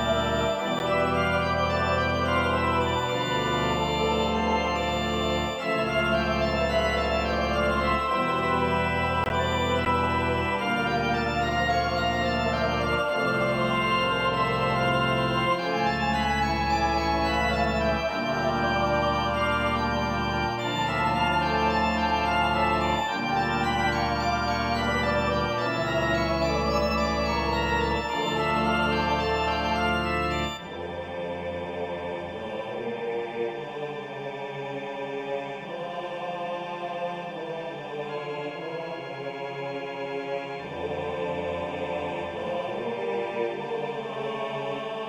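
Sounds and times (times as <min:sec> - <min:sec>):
organ chords: 0:00.0 - 0:32.6.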